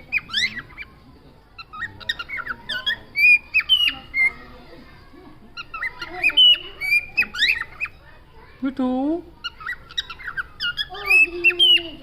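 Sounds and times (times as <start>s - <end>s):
parrot chirps and squawks: 0.0s - 1.0s, 1.6s - 4.7s, 5.5s - 8.1s, 9.4s - 12.0s.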